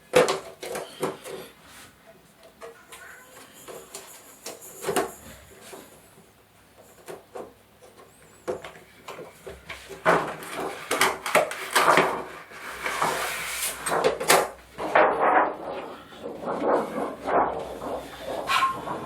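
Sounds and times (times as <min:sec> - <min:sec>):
scraping rustling and knocking: 0:06.8 - 0:19.0.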